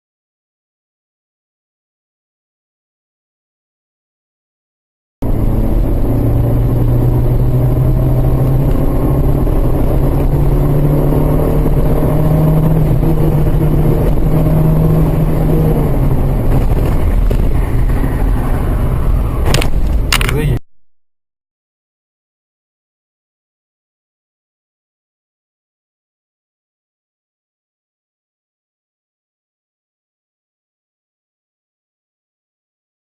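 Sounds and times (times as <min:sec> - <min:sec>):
car engine hum: 0:05.2 - 0:20.6
road noise rumble: 0:05.2 - 0:20.6.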